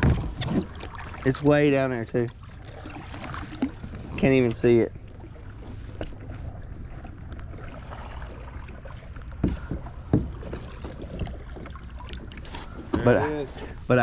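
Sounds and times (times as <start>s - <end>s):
sharp knocks on kayak: 0.0s - 0.9s, 9.3s - 11.7s
low rumble of wind and water: 0.0s - 14.0s.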